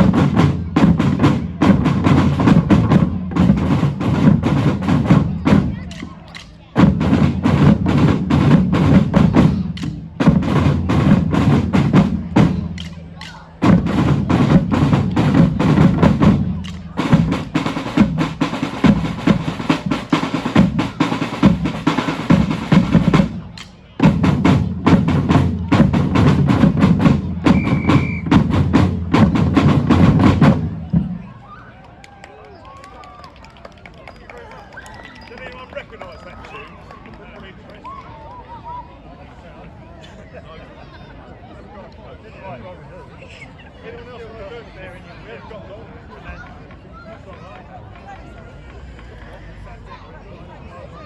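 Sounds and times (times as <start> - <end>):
drum band playing: 0.0 - 31.4.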